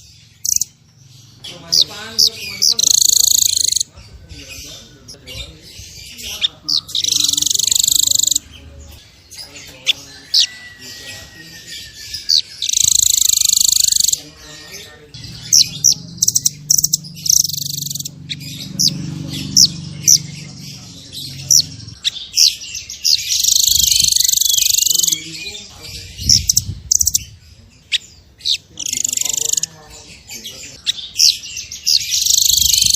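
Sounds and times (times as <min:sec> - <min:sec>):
bird high trills: 0:00.0 - 0:03.9, 0:06.4 - 0:08.4, 0:09.9 - 0:25.6, 0:31.1 - 0:32.9
low murmur: 0:13.6 - 0:22.2.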